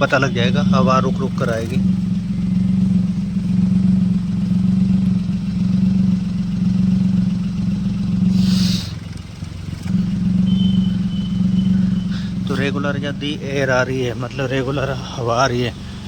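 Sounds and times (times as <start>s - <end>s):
car engine idling: 0.0s - 16.0s
brief hiss: 8.3s - 9.0s.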